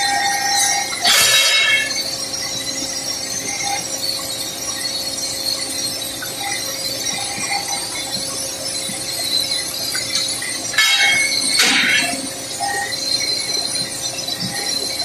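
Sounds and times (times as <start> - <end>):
drill rig metallic drilling: 0.0 - 2.2, 10.1 - 12.9
constant low hum: 0.0 - 15.0.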